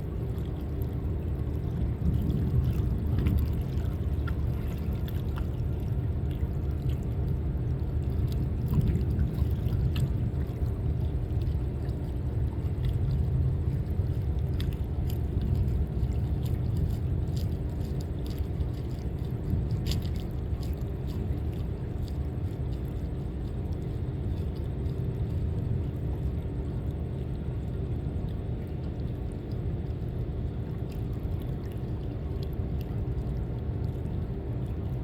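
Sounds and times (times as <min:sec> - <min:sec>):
boat motor rumble: 0:00.0 - 0:35.0
water splashing and sloshing: 0:00.0 - 0:35.0.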